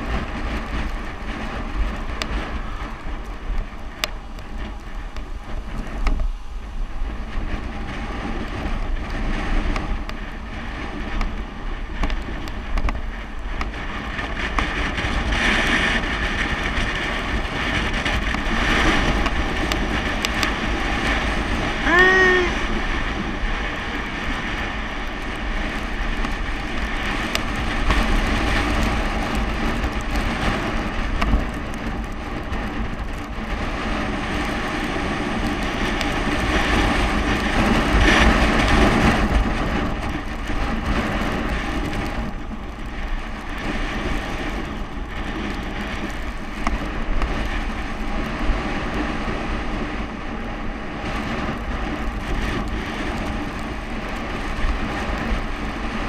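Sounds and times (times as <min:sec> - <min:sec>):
bicycle road rumble: 0:00.0 - 0:56.0
wind rushing over microphone: 0:00.0 - 0:56.0.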